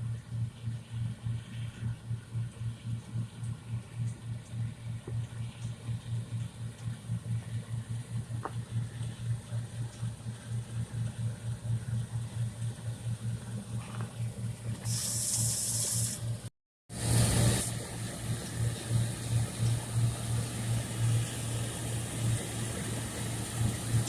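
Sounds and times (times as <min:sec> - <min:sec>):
farm machinery engine humming: 0:12.6 - 0:24.0
burst of high hiss: 0:14.9 - 0:16.2.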